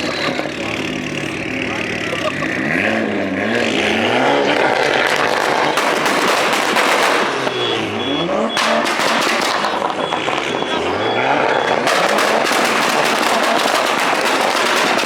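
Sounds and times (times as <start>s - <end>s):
car engine revving: 0.0s - 15.0s
loud rushing noise: 3.7s - 15.0s.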